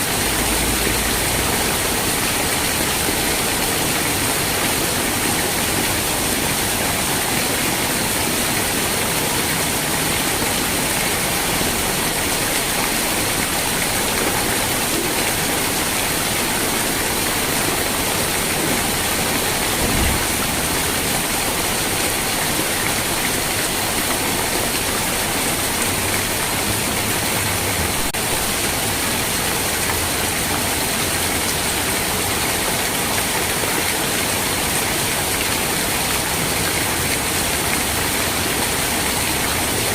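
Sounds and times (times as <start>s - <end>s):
rain falling: 0.0s - 39.9s
faint low thump: 19.8s - 20.7s.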